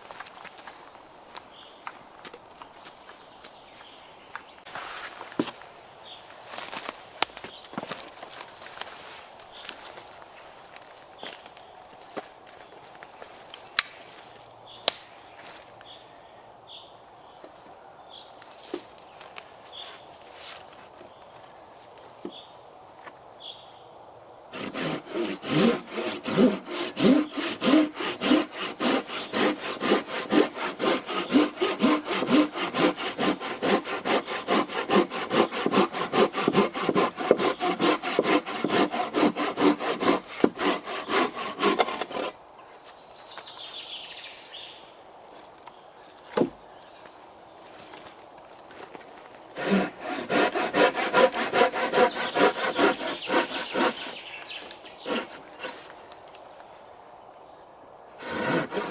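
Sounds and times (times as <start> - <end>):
hand saw cutting branch: 24.6 - 42.4, 49.6 - 55.9, 58.2 - 58.9.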